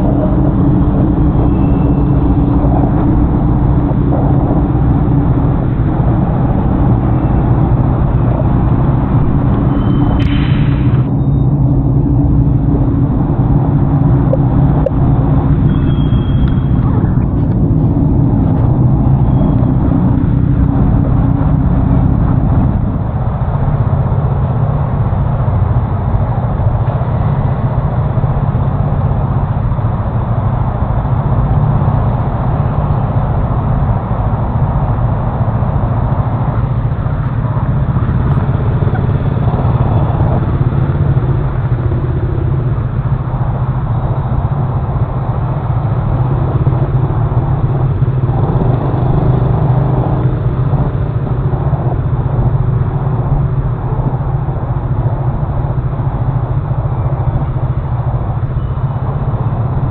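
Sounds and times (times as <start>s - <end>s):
wind rush on microphone: 0.0s - 59.9s
scooter engine running: 36.2s - 59.9s.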